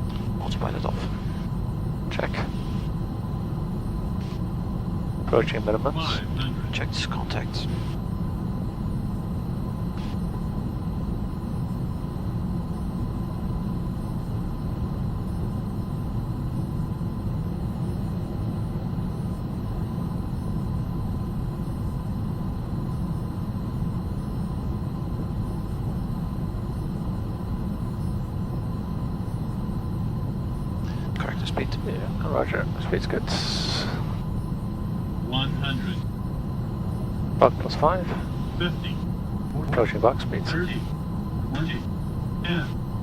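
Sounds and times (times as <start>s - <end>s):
cockpit low rumble: 0.0s - 8.5s, 30.8s - 43.0s
jet engine noise: 0.0s - 43.0s
airflow: 30.9s - 41.8s.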